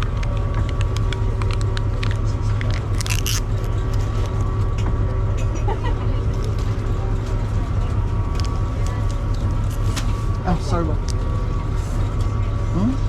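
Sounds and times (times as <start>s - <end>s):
boat engine drone: 0.0s - 13.0s.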